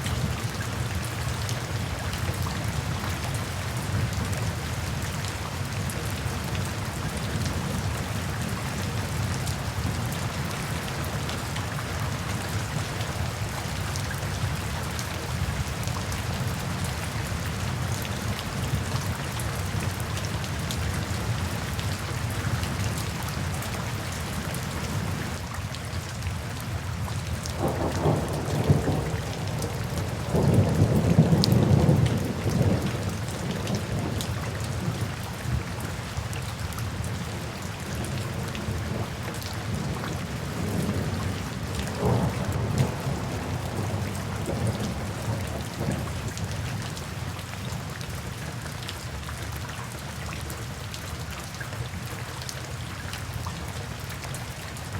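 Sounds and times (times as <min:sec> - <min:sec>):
steady rain falling: 0:00.0 - 0:54.9
low rumble of thunder: 0:27.5 - 0:35.6, 0:37.9 - 0:47.0.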